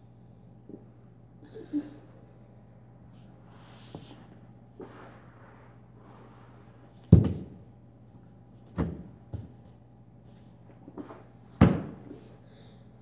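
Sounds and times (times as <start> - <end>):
body thudding on the floor: 7.0 - 7.6, 8.7 - 9.6, 11.0 - 12.1.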